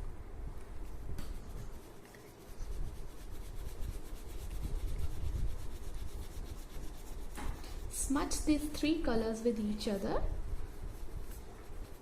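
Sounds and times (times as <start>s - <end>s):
crayon rubbing on paper: 1.5s - 8.8s, 10.6s - 12.0s.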